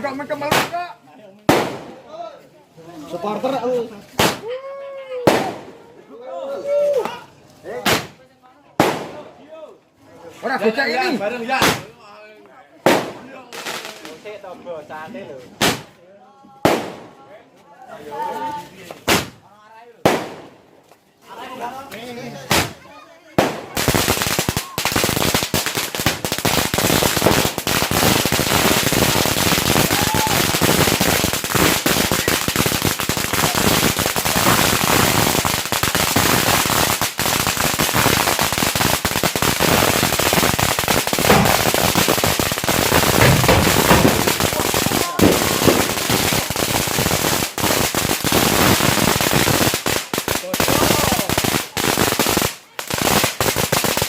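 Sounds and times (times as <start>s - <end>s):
firecrackers going off: 0.0s - 2.1s, 3.1s - 4.5s, 7.0s - 9.3s, 10.6s - 12.0s, 15.5s - 16.0s, 18.9s - 19.4s, 20.0s - 20.6s, 22.4s - 22.8s, 23.4s - 54.0s.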